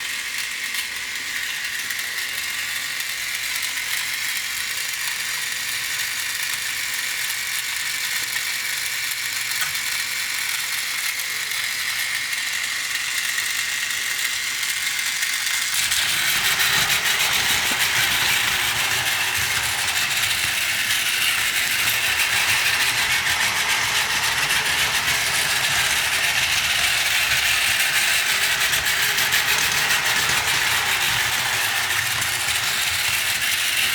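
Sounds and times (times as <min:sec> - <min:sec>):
toy train motor whirring: 0:00.0 - 0:33.9
wheels rattling on track: 0:15.7 - 0:33.9.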